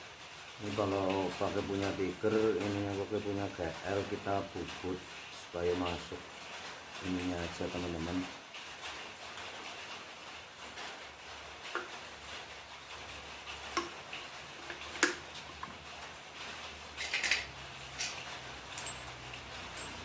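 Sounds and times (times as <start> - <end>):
metallic clicks of parts and tools: 17.0 - 20.0.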